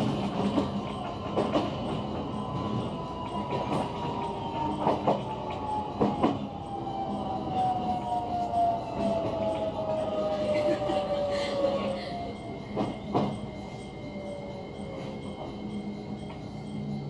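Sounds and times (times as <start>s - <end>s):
train wheels clicking over rail joints: 0.0s - 8.1s, 12.7s - 13.5s.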